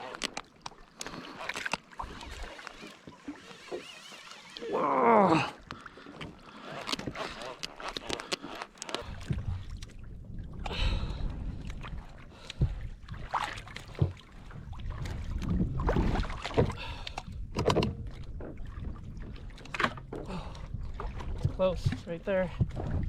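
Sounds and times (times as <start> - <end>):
water and wind rumble: 0.0 - 23.0
knocks and clicks from kayak hull: 12.5 - 23.0.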